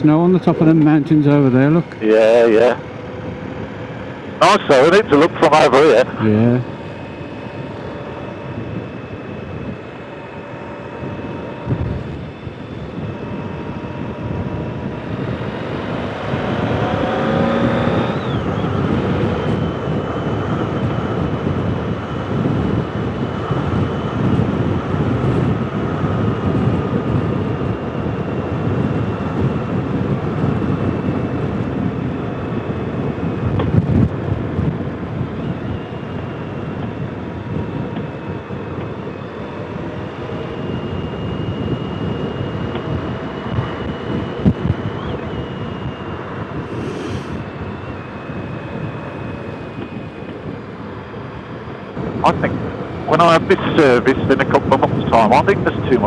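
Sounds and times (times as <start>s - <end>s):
wind rush: 1.9s - 56.0s
motorcycle engine: 6.1s - 30.4s.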